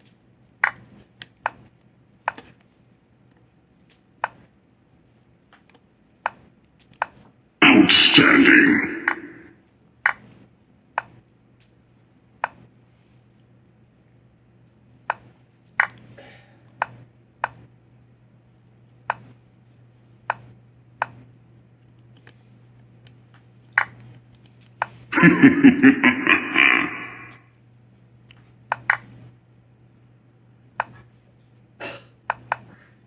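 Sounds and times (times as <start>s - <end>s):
faint steady hum: 7.4s - 33.0s.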